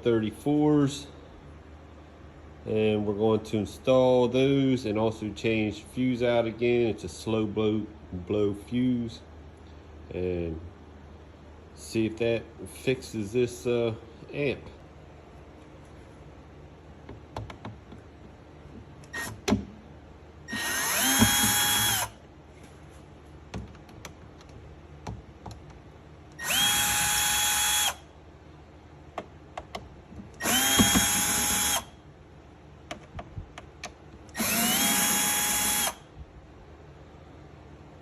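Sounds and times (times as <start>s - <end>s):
electric drill whining: 20.5s - 22.2s, 26.4s - 28.1s, 30.4s - 31.9s, 34.3s - 36.1s.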